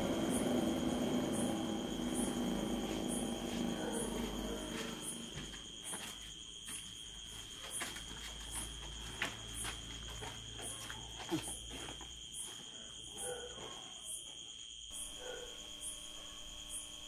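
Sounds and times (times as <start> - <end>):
crickets trilling: 0.0 - 17.0
soft footsteps: 0.4 - 12.7.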